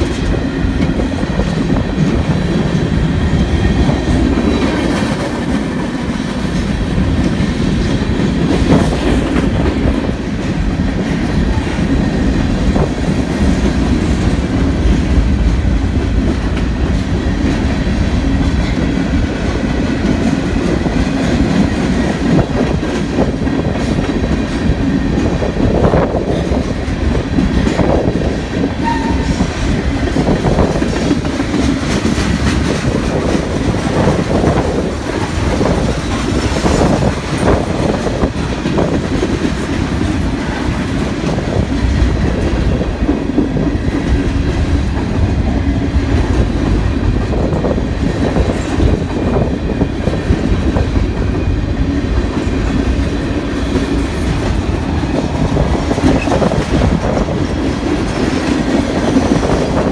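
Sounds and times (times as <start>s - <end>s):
freight train rumbling past: 0.0s - 59.9s.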